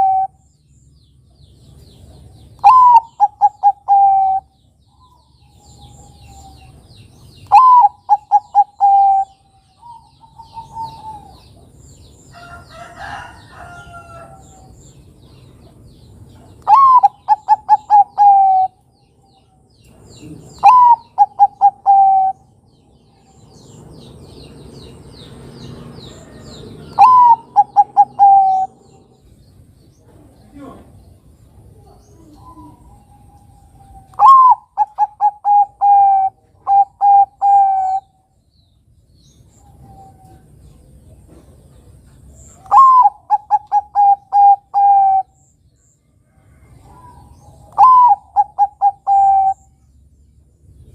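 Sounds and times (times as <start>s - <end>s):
dove cooing: 0.0s - 0.4s, 2.6s - 6.8s, 7.4s - 11.7s, 16.6s - 18.8s, 20.2s - 22.5s, 26.3s - 29.2s, 31.7s - 38.1s, 42.5s - 45.4s, 46.5s - 49.7s
small birds chirping: 0.0s - 50.9s.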